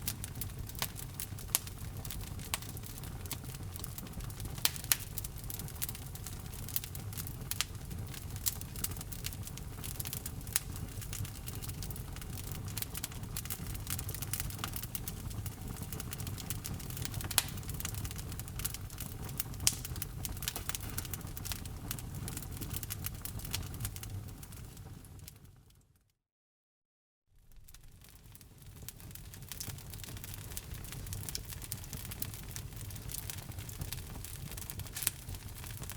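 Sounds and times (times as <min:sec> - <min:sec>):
fire popping: 0:00.0 - 0:25.5, 0:27.4 - 0:35.9
wood fire crackling: 0:00.0 - 0:25.6, 0:27.4 - 0:35.9
low rumble of burning: 0:00.0 - 0:25.8, 0:27.4 - 0:35.9.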